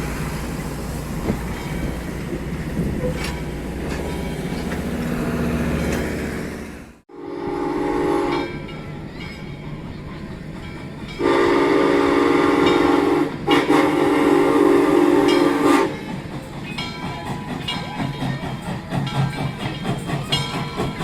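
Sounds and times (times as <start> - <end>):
train rumble: 0.0 - 21.0
locomotive chime whistle blasts: 7.1 - 8.6, 11.2 - 16.0.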